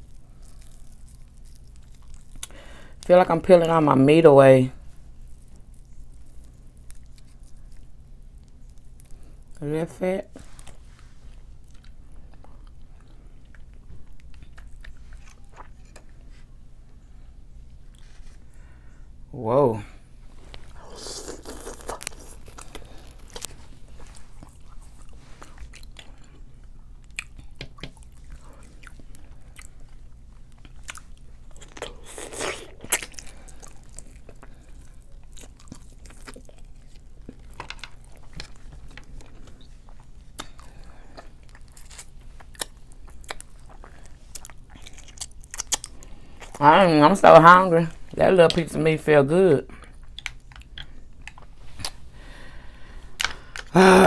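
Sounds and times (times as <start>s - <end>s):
biting and chewing sounds: 0.0s - 3.1s, 4.8s - 9.7s, 10.3s - 16.4s, 20.5s - 46.6s.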